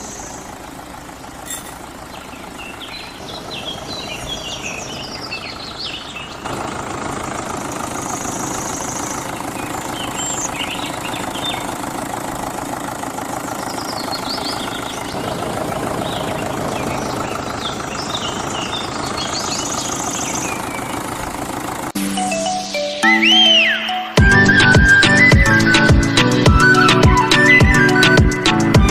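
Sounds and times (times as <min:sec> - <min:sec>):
birds chirping: 0:00.0 - 0:22.0
music: 0:22.0 - 0:28.9.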